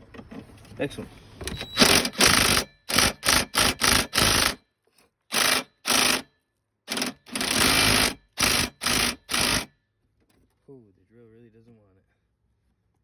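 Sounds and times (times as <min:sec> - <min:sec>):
drill driving a socket in bursts: 0:01.5 - 0:04.6, 0:05.3 - 0:06.3, 0:06.9 - 0:09.7.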